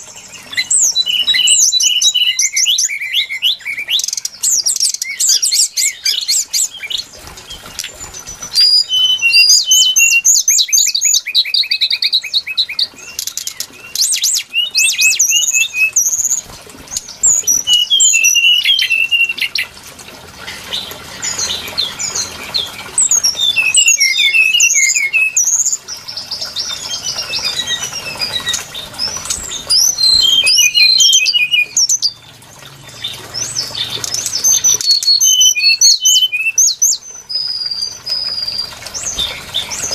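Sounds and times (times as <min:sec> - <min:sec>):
bird whistling and trilling: 0:00.0 - 0:19.7, 0:20.5 - 0:39.9.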